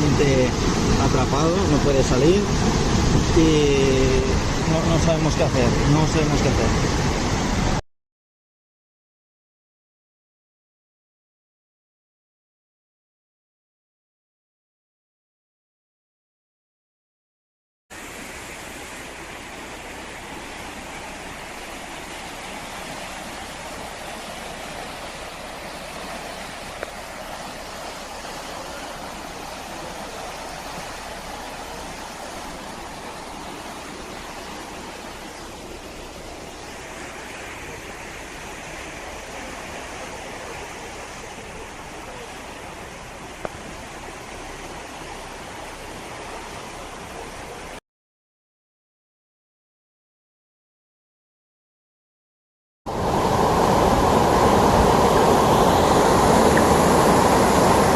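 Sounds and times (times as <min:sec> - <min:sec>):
rushing floodwater: 0:00.0 - 0:07.8, 0:17.9 - 0:47.8, 0:52.9 - 0:57.9.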